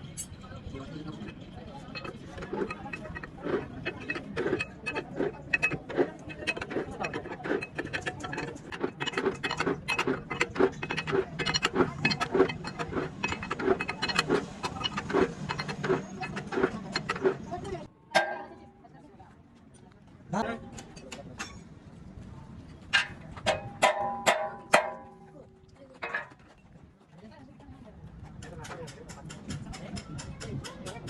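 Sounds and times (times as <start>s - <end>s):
metal tool clicks and knocks: 1.2s - 18.7s, 23.0s - 25.3s.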